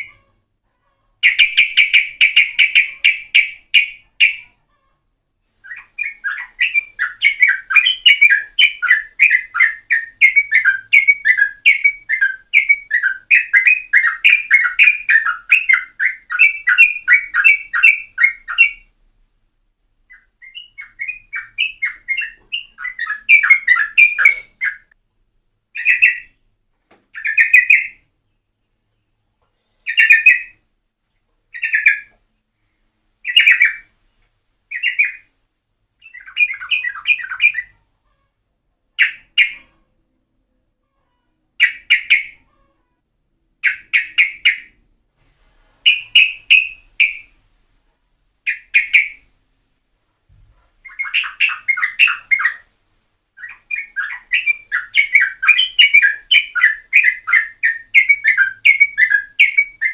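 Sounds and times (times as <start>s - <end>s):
bulbul singing: 1.2s - 4.6s, 5.6s - 18.9s, 20.1s - 25.0s, 25.7s - 26.4s, 27.1s - 28.1s, 45.8s - 47.4s, 50.8s - 52.7s, 53.4s - 59.9s.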